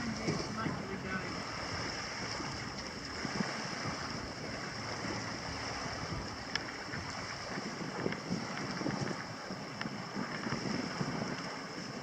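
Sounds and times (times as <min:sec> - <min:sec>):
surf: 0:00.0 - 0:12.0
wind on microphone: 0:00.0 - 0:12.0.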